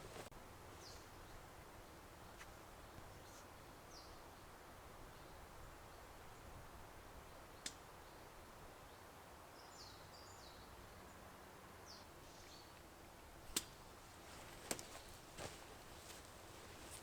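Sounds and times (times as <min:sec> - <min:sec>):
sharp snaps: 0:13.5 - 0:13.8.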